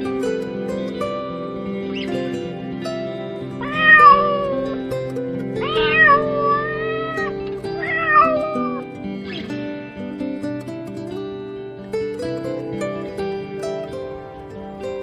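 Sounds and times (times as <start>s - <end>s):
plucked string music: 0.0s - 15.0s
cat meowing: 3.6s - 4.8s, 5.6s - 8.8s.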